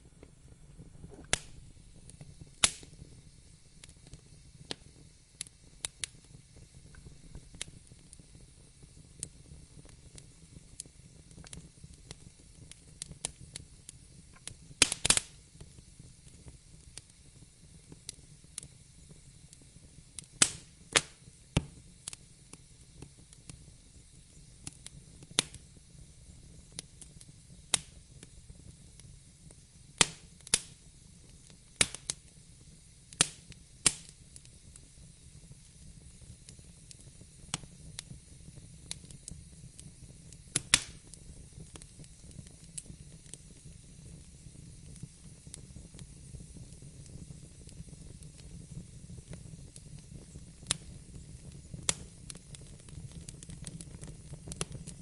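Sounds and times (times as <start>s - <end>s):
faint low rumble: 0.0s - 14.8s
fire crackling and popping: 0.0s - 55.0s.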